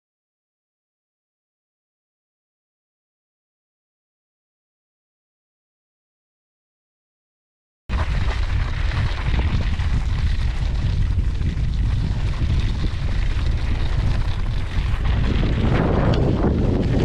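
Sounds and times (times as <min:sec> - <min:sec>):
wind buffeting microphone: 0:07.9 - 0:17.0.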